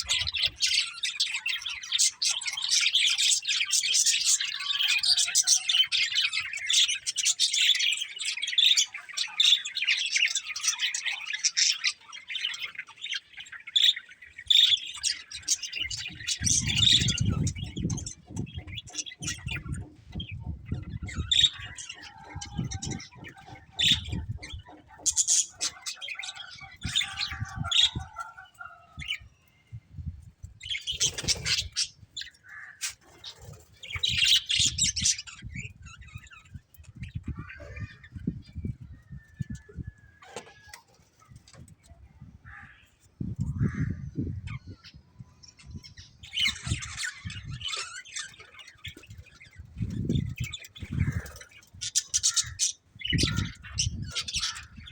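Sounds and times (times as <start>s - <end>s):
budgerigars chirping and chattering: 0.0s - 54.9s.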